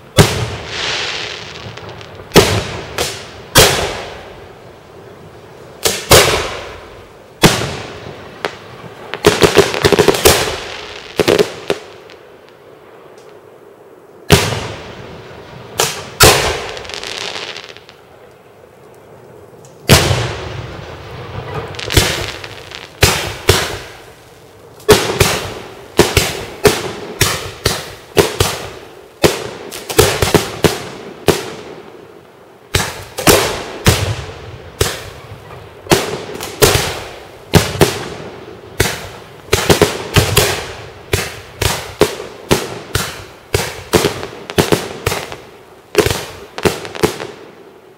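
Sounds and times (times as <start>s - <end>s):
fireworks bursting: 0.0s - 47.9s.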